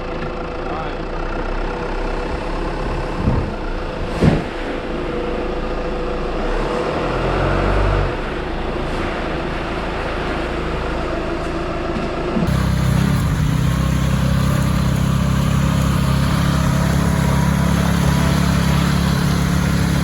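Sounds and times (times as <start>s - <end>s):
car engine running: 8.2s - 20.0s.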